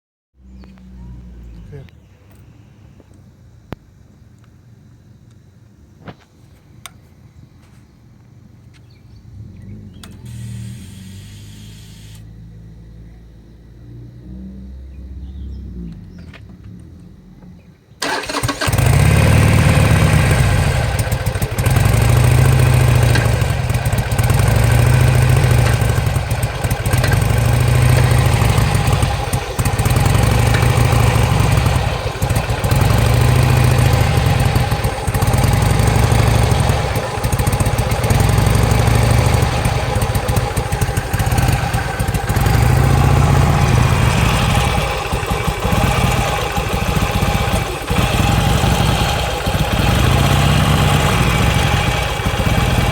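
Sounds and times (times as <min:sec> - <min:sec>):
motorcycle backfiring: 0:18.0 - 0:52.9
motorcycle engine running unevenly: 0:18.0 - 0:52.9.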